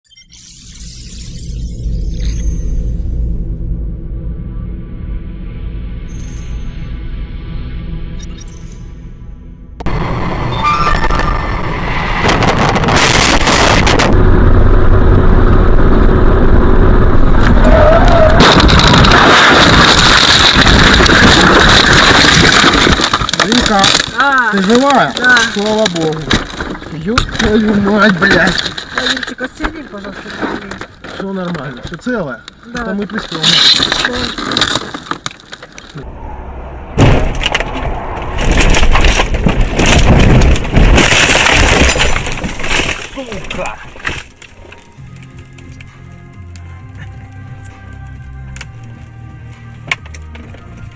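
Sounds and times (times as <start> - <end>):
engine and road rumble: 0.1 - 50.9
car crash scraping and grinding: 9.8 - 14.5, 17.4 - 45.0
glass breaking: 18.4 - 29.1, 38.4 - 44.9.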